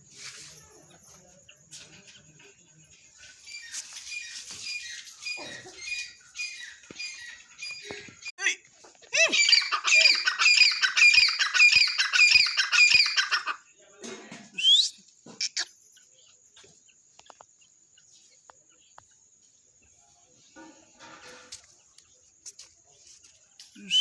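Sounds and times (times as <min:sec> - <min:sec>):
francolin calling harshly: 0:09.2 - 0:13.6.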